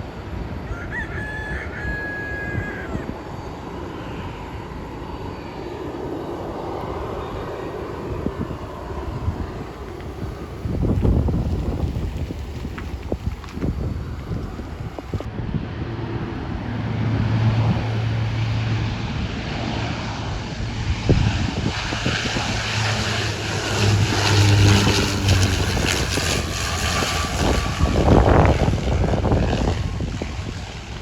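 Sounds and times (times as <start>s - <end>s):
aircraft engines humming: 0.0s - 31.0s
wind buffeting microphone: 4.5s - 31.0s.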